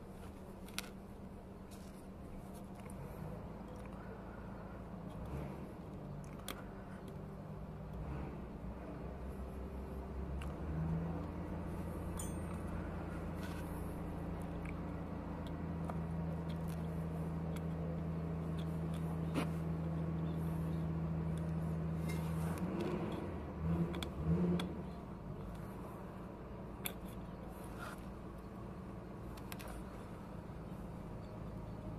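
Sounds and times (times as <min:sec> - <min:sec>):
low machine hum: 0:00.0 - 0:31.9
metallic clicks and clinks: 0:12.1 - 0:12.8.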